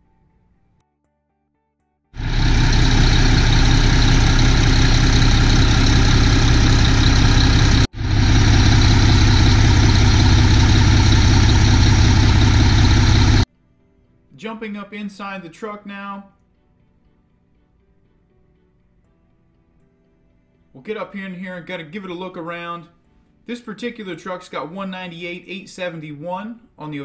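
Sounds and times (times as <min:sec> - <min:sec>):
diesel truck engine idling: 0:02.2 - 0:13.5.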